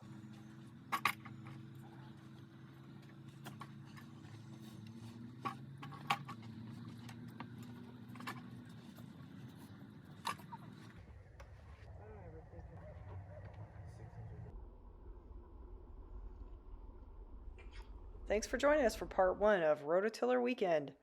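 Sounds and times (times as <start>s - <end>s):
small engine running: 0.0s - 11.3s.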